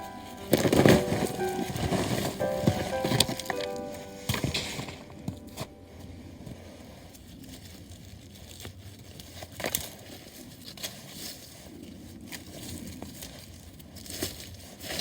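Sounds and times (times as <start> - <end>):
background music: 0.0 - 6.8
light rustling: 0.0 - 7.6.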